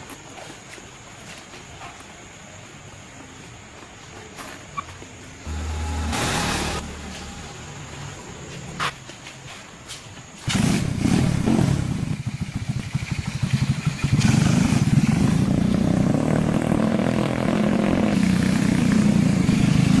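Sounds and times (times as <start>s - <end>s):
vehicle engine starting and running: 5.5s - 8.3s, 10.4s - 20.0s.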